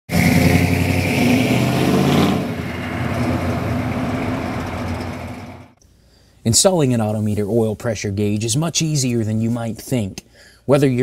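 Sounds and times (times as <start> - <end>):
car engine running loudly: 0.1 - 5.8.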